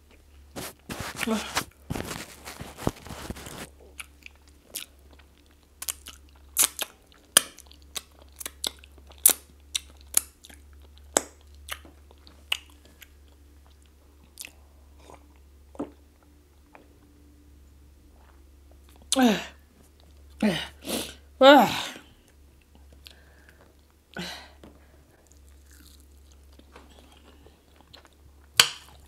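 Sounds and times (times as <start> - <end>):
wet chewing and lip smacking: 3.9 - 16.9.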